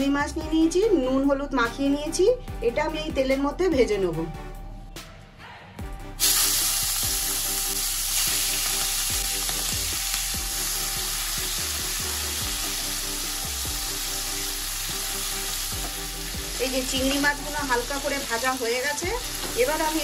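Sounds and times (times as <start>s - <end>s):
prawns sizzling in oil: 6.2s - 20.0s.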